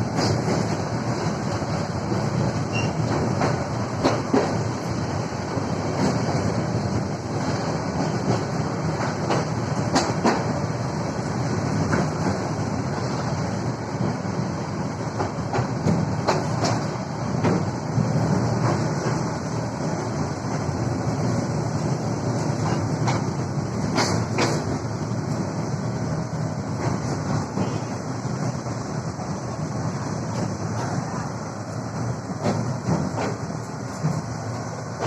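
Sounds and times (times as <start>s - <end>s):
train wheels clacking: 0.0s - 1.3s, 2.1s - 4.9s, 7.9s - 10.6s, 15.1s - 19.3s, 22.3s - 24.9s, 26.8s - 28.0s, 32.3s - 35.0s
train rumbling on rails: 0.0s - 35.0s.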